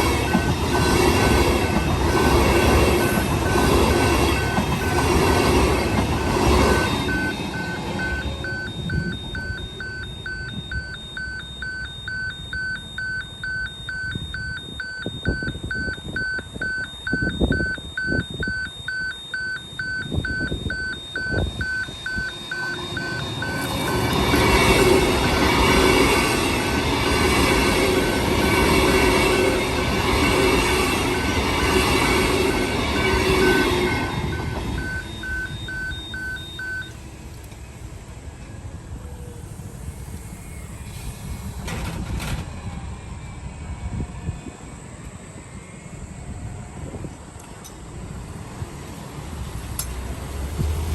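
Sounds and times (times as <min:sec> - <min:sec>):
train passing: 0:00.0 - 0:50.9
level crossing bell ringing: 0:06.7 - 0:25.8
wheels clunking over rail joints: 0:40.9 - 0:42.9.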